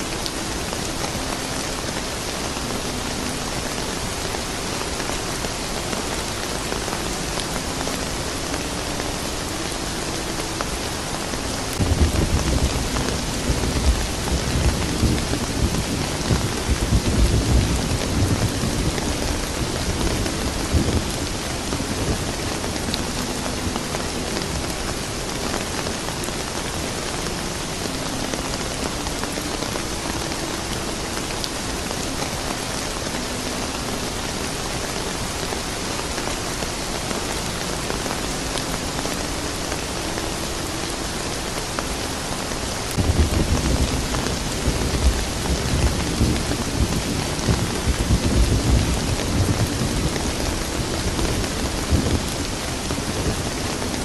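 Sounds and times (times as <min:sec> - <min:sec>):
steady rain: 0:00.0 - 0:54.0
thunder rumbling: 0:11.7 - 0:24.9, 0:42.9 - 0:54.0.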